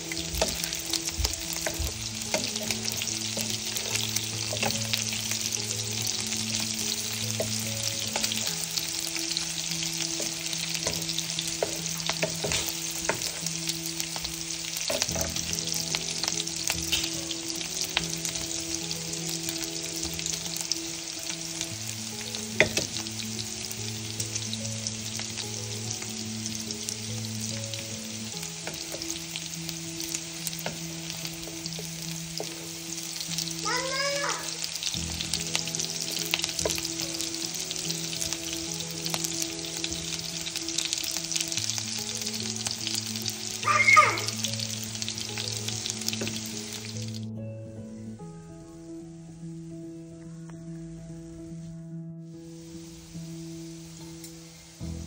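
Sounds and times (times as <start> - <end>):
food sizzling in hot oil: 0.0 - 47.4, 52.2 - 55.0
spatula scraping and tapping pan: 0.2 - 5.0, 10.1 - 13.5.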